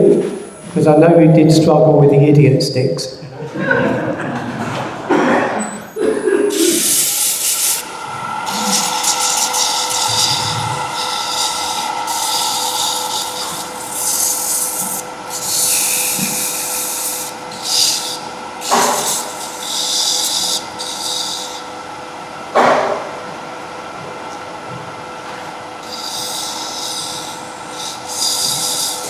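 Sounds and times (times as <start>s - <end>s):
wood lathe motor whine: 6.0s - 22.6s, 25.2s - 29.0s
turning tool cutting wood: 6.5s - 22.0s, 25.8s - 29.0s.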